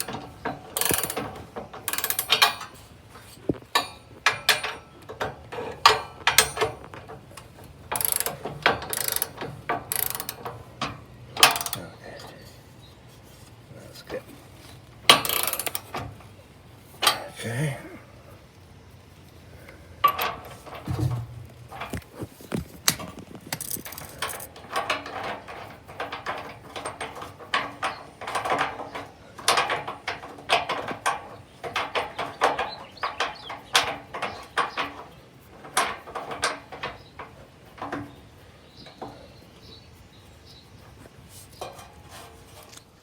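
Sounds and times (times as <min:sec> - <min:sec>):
hand tool clicking on metal: 0:00.0 - 0:12.4, 0:15.1 - 0:16.1, 0:20.0 - 0:39.4.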